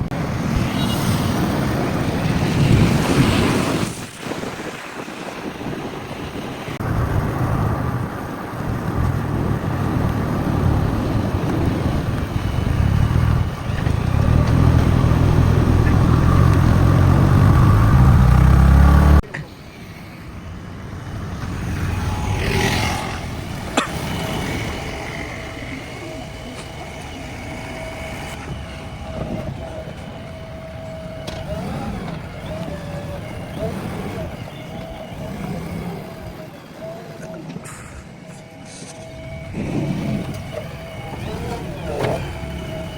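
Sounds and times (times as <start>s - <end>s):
backhoe engine under load: 0.0s - 42.9s
engine with steady whine: 0.0s - 42.9s.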